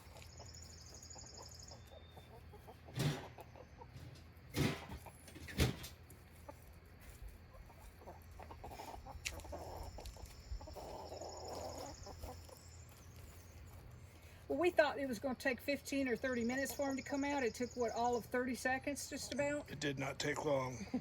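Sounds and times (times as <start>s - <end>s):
hens clucking softly: 0.0s - 14.2s.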